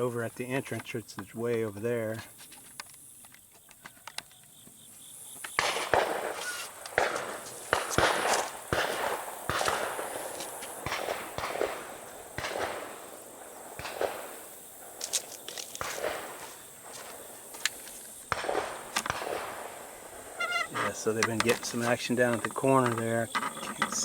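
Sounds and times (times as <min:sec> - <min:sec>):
footsteps crunching through dry vegetation: 0:05.9 - 0:11.5, 0:14.8 - 0:19.9.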